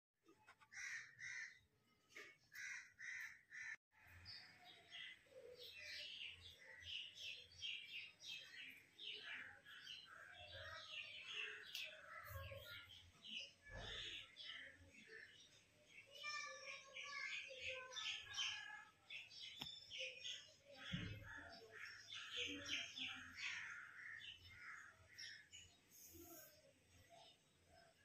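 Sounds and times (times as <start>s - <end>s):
birds chirping: 0.4s - 28.0s
bird cawing: 0.6s - 1.6s, 2.5s - 3.8s.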